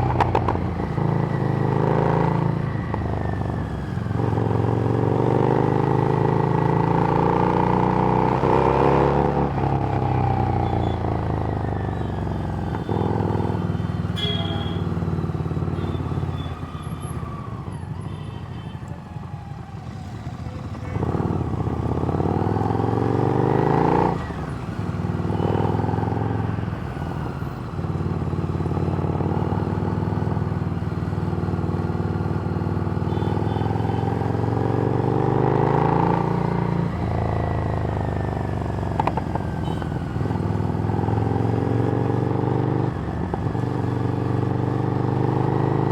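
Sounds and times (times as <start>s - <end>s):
motorcycle engine shifting gears: 0.0s - 11.7s, 33.8s - 45.9s.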